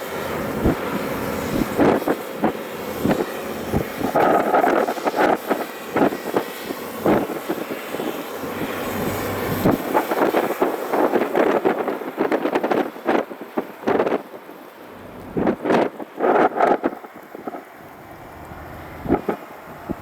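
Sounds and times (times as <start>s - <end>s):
excavator diesel engine running: 14.8s - 15.8s, 17.8s - 20.0s.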